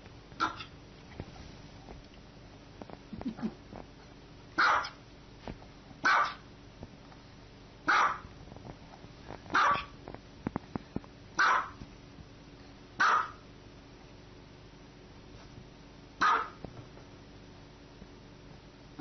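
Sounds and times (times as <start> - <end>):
dog barking: 0.4 - 0.7, 4.6 - 5.0, 6.0 - 6.5, 7.9 - 8.3, 9.5 - 9.9, 11.4 - 11.8, 13.0 - 13.4, 16.2 - 16.6.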